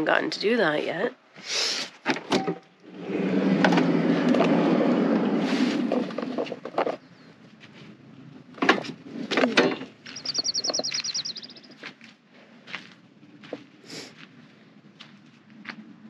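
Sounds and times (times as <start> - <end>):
songbird trilling: 10.0 - 11.8.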